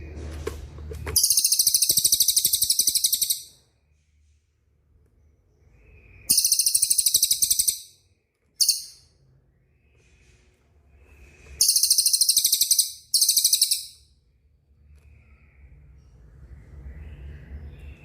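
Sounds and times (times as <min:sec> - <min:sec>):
songbird rolling trill: 0:01.2 - 0:03.4.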